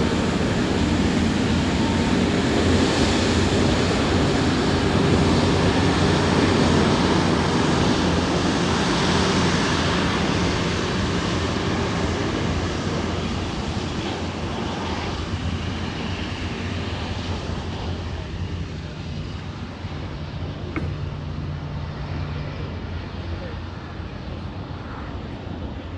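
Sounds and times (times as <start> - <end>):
steady low hum: 18.8 - 23.8
brief click: 20.7 - 21.1.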